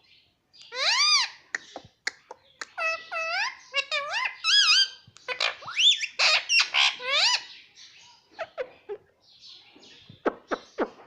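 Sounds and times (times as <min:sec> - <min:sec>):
parrot squeaks: 0:00.7 - 0:01.8, 0:02.6 - 0:07.5
parrot chirps: 0:00.7 - 0:07.5.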